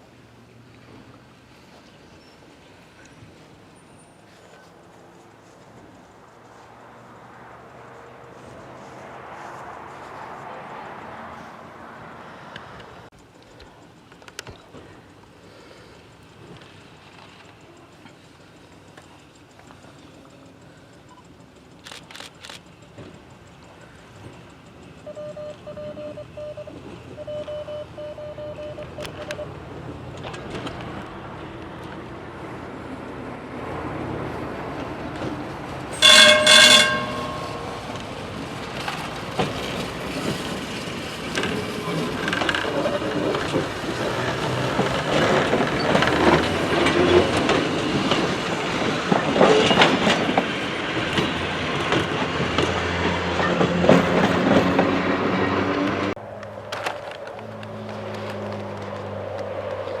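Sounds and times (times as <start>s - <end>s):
train rumble and wheel clatter: 0.0s - 60.0s
train horn: 35.9s - 38.1s.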